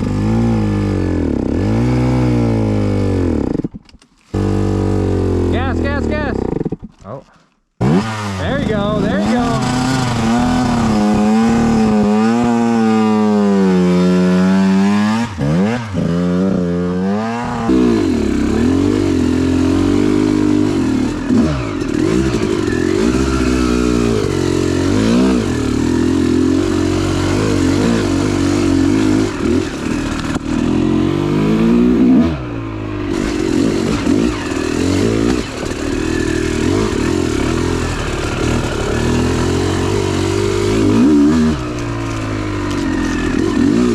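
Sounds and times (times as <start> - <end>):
dirt bike engine revving: 0.0 - 3.7, 4.3 - 7.0, 7.8 - 43.9.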